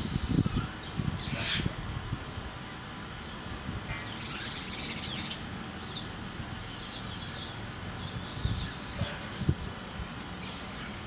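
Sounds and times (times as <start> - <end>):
bird chirping: 3.9 - 9.7.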